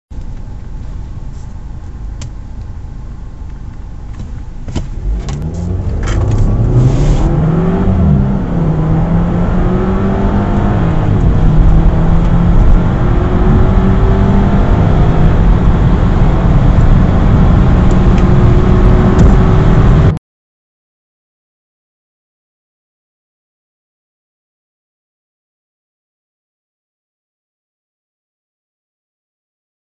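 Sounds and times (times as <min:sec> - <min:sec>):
car engine accelerating: 0:00.2 - 0:20.2.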